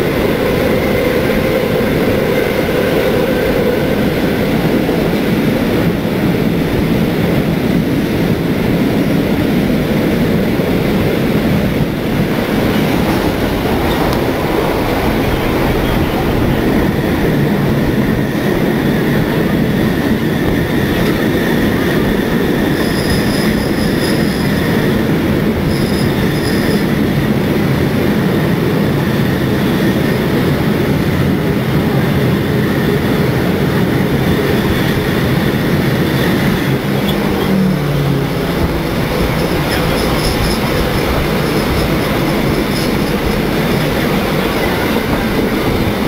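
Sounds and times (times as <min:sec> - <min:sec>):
train carriage rumbling on track: 0:00.0 - 0:46.0
high wheel squeal: 0:21.7 - 0:25.0, 0:25.6 - 0:27.0, 0:36.0 - 0:45.9.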